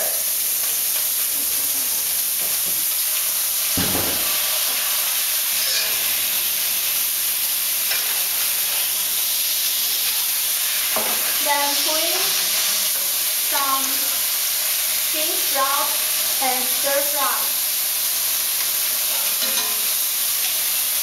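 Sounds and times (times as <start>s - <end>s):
meat sizzling in hot oil: 0.0s - 21.0s
dull thump: 3.8s - 4.3s
spatula stirring in wok: 4.3s - 6.3s, 18.6s - 20.7s.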